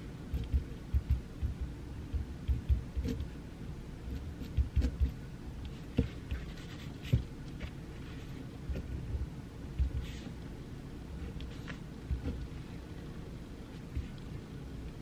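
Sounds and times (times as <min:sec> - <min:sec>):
pencil scratching on paper: 0:02.5 - 0:03.3, 0:04.1 - 0:07.3.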